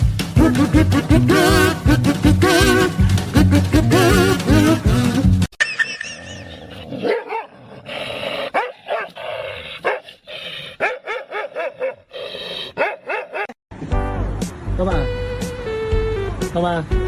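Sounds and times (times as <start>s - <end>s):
dog yipping barks: 7.0s - 7.6s, 8.5s - 9.2s, 9.8s - 10.1s, 10.8s - 12.1s, 12.8s - 13.6s.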